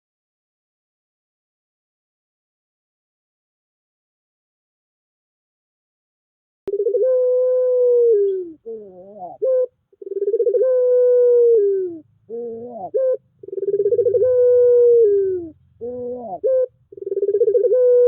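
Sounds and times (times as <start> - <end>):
dove cooing: 6.7 - 18.0.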